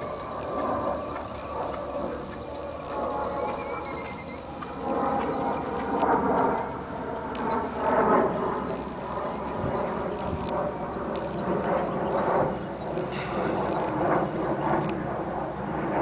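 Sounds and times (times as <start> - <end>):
small bird chirping: 0.0 - 0.4, 3.2 - 4.5, 5.2 - 5.8, 6.5 - 8.0, 8.6 - 13.1
outdoor rushing noise: 13.0 - 16.0.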